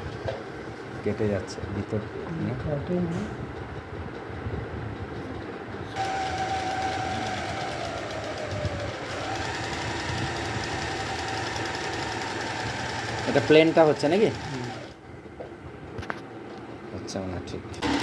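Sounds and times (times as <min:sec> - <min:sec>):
electric sewing machine stitching: 0:06.0 - 0:15.0, 0:17.8 - 0:18.0.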